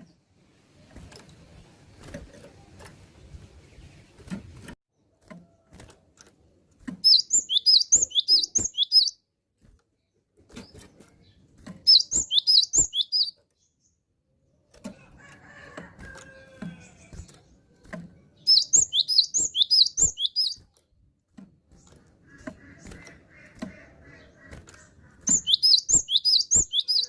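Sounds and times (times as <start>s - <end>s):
bird chirping rapidly: 7.0s - 9.2s, 11.8s - 13.8s, 18.4s - 20.6s, 22.3s - 27.0s.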